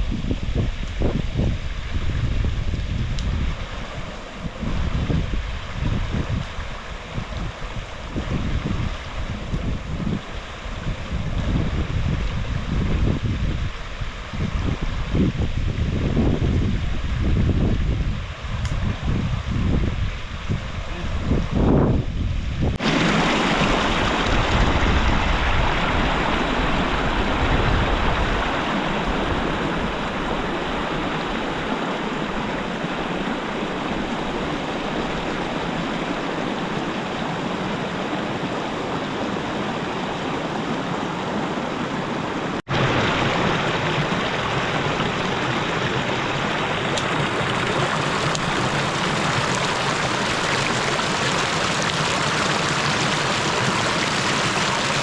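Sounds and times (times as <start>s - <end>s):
flowing river water: 0.8s - 17.2s, 22.8s - 55.0s.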